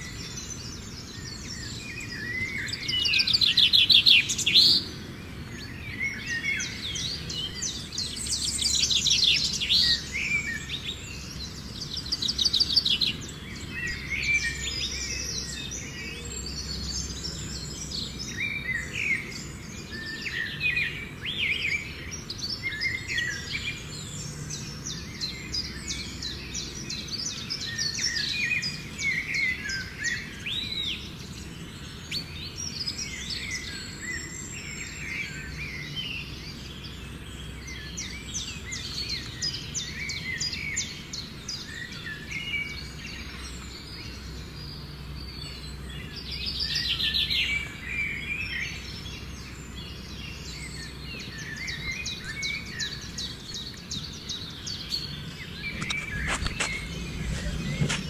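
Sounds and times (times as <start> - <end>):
small birds chirping: 0.0 - 58.0
low background rumble: 54.1 - 58.0
fast rattling bird trill: 54.9 - 58.0.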